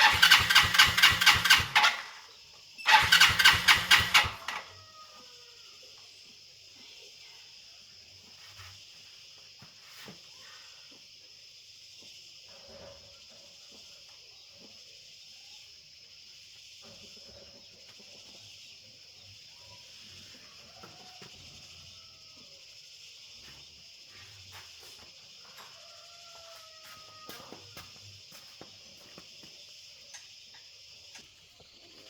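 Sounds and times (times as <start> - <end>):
insects chirping: 0.0 - 32.0.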